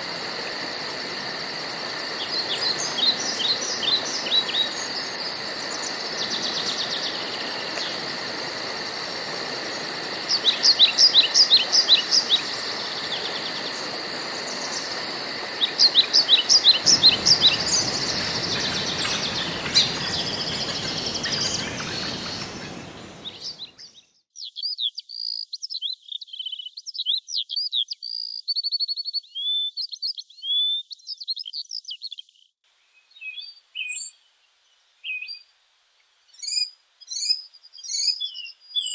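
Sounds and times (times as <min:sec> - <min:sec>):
steady hiss: 0:00.0 - 0:23.7
birds chirping and singing: 0:14.5 - 0:23.8.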